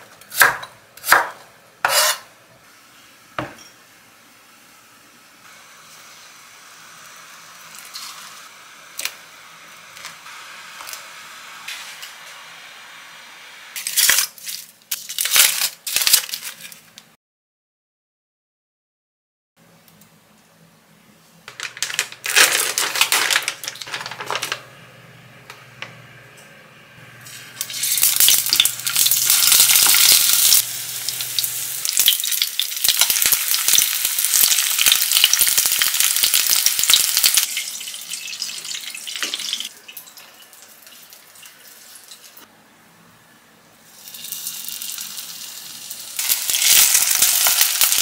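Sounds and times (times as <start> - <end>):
squid frying in oil: 5.5 - 12.0, 27.5 - 42.2, 43.9 - 48.0.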